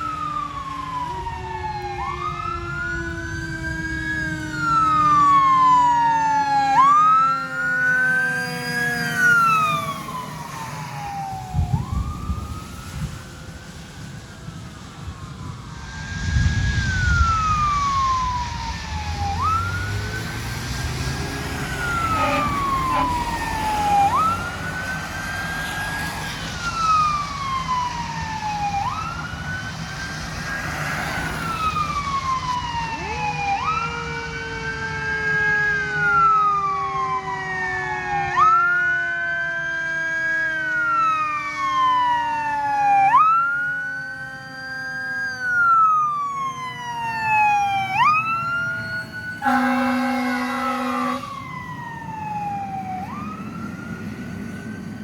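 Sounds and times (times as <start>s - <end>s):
fire engine siren wailing: 0.0s - 55.0s
lower siren tone gliding down: 0.0s - 55.0s.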